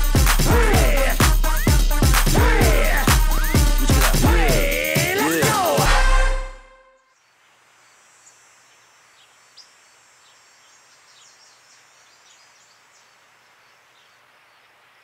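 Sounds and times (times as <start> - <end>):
small birds chirping: 7.1 - 15.0
steady hiss: 7.3 - 15.0.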